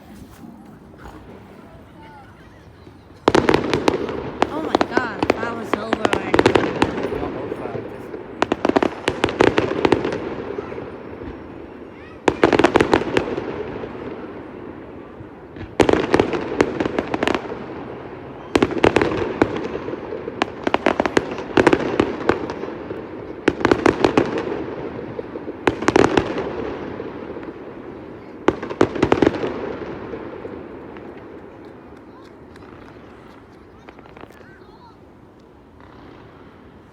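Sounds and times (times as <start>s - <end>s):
fireworks exploding: 0.0s - 36.9s.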